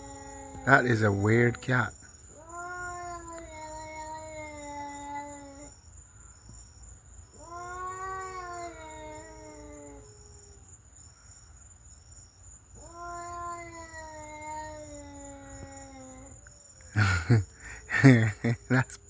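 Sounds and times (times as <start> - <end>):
cat yowling: 0.0 - 5.7, 7.4 - 10.6, 12.8 - 16.4.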